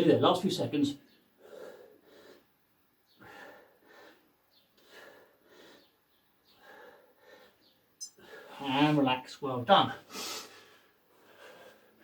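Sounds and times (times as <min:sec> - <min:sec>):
man breathing hard: 0:01.4 - 0:02.5, 0:03.1 - 0:08.6, 0:10.0 - 0:12.0.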